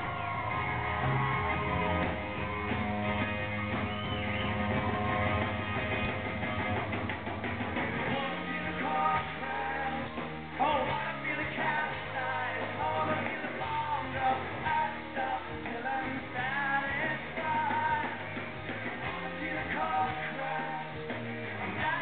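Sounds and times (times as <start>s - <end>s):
live rock band playing: 0.0s - 22.0s
person singing: 8.1s - 18.3s, 19.0s - 22.0s.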